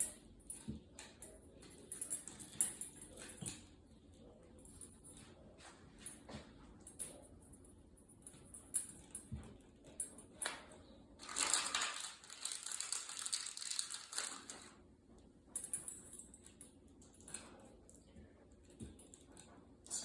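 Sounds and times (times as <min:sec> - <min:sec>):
crinkling and scraping: 0:08.3 - 0:14.8.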